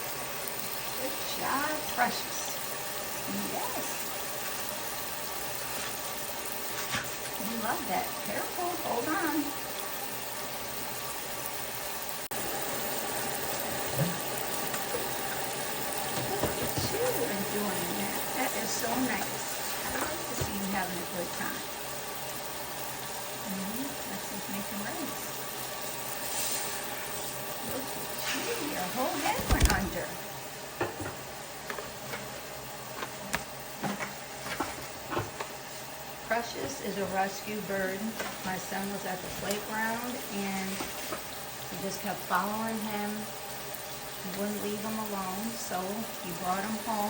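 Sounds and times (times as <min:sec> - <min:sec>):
running water rushing: 0:00.0 - 0:35.7.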